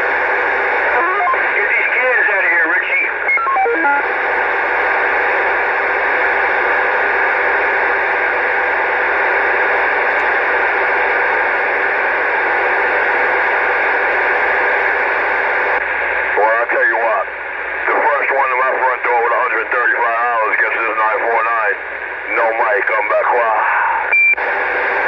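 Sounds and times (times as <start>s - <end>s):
radio static hiss: 0.0s - 25.0s
falling beeps: 3.3s - 4.0s, 24.1s - 24.4s.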